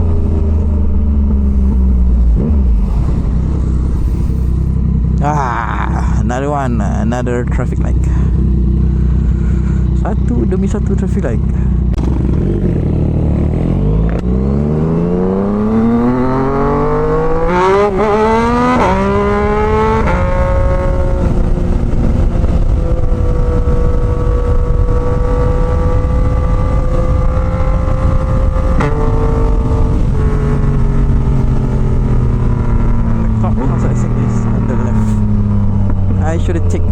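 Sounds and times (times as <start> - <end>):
wind rushing: 0.0 - 5.2, 14.8 - 33.6
motorcycle engine accelerating: 0.0 - 36.9.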